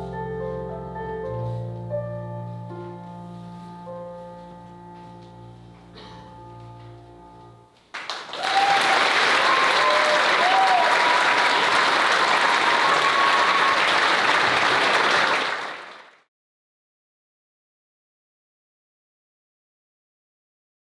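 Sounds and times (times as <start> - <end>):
held musical chord: 0.0 - 7.7
audience applause: 7.9 - 16.2.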